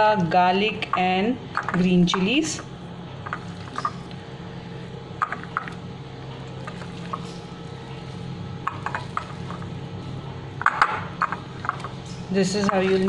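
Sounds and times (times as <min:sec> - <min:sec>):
steady low hum: 0:00.0 - 0:13.0
wet squelching of mixing by hand: 0:01.4 - 0:09.9, 0:11.2 - 0:13.0.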